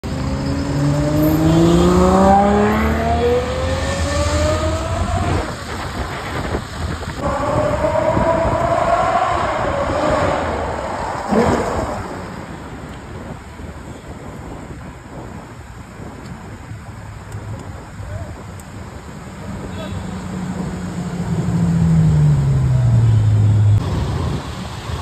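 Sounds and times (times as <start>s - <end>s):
car engine accelerating hard: 0.0s - 12.4s.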